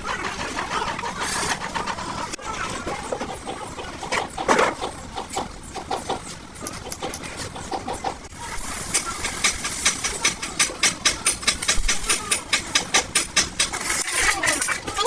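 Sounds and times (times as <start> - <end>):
workshop noise hiss: 0.0 - 15.0
rapid hammering on metal: 8.4 - 14.3.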